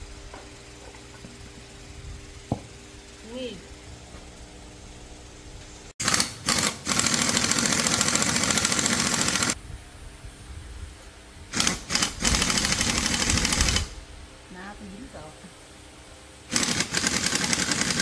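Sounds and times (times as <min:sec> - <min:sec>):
metalworking tool rattling buzz: 0:00.6 - 0:09.6, 0:11.5 - 0:14.0, 0:16.5 - 0:18.0.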